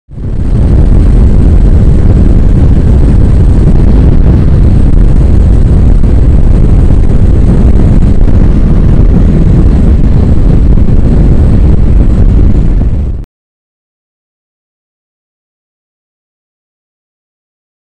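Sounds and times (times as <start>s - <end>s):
wind roar on microphone: 0.1s - 13.3s.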